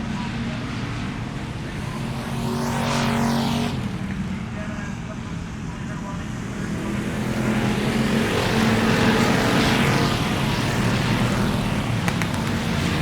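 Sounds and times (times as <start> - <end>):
vehicle engine humming: 5.8 - 13.0
sharp clicks: 12.0 - 12.8.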